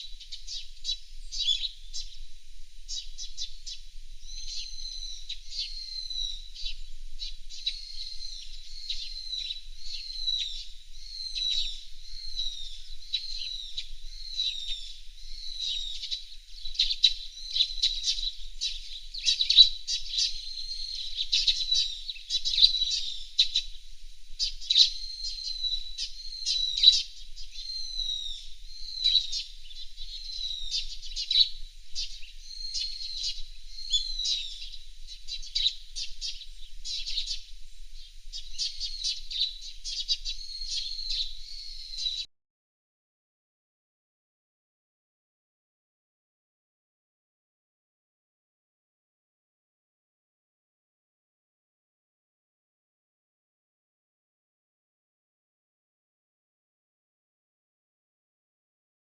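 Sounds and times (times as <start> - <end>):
small birds chirping: 0.0 - 42.3.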